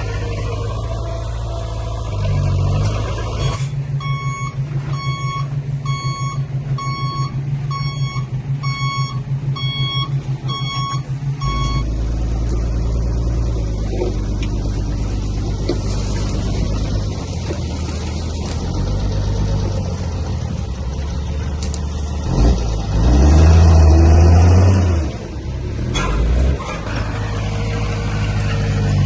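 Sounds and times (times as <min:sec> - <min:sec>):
diesel engine running: 0:00.0 - 0:29.0
reversing alarm beeping: 0:03.3 - 0:12.0.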